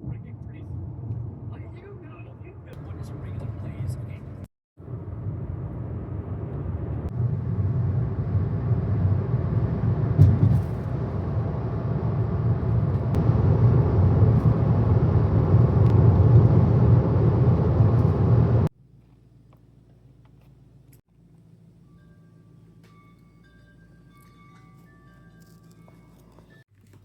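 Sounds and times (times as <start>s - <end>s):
car road and engine rumble: 0.0s - 21.3s.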